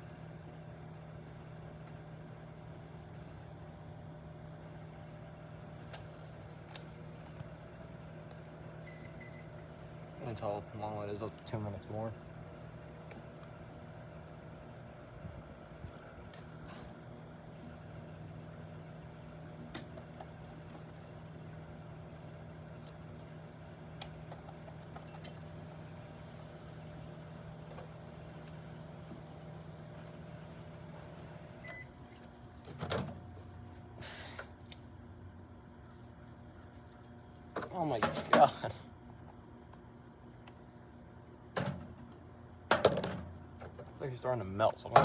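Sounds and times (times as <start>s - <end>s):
microwave oven humming: 0.0s - 45.0s
short beep: 8.9s - 9.5s.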